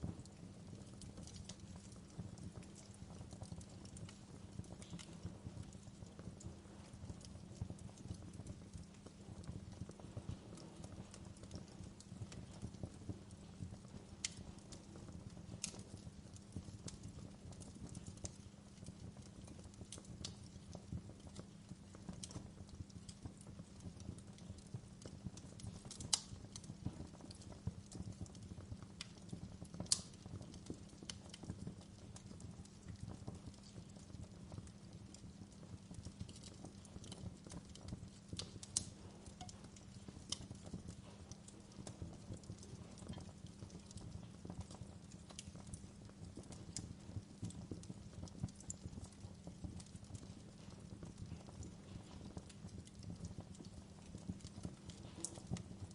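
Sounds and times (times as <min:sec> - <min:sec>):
low rumble of flames: 0:00.0 - 0:55.9
wood fire crackling: 0:00.0 - 0:55.9.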